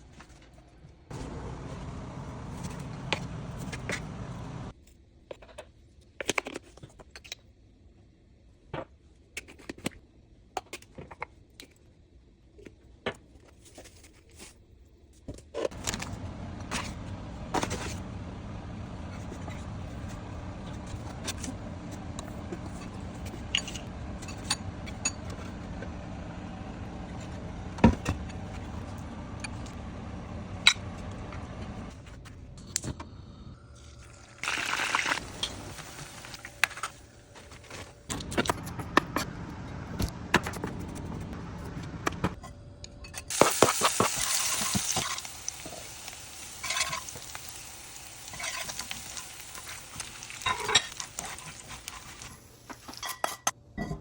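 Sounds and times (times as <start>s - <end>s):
low hum: 1.1s - 4.7s, 15.8s - 43.2s
utensils clattering: 15.7s - 29.6s, 46.6s - 47.3s, 48.2s - 54.0s
liquid hissing and pouring: 33.8s - 36.5s.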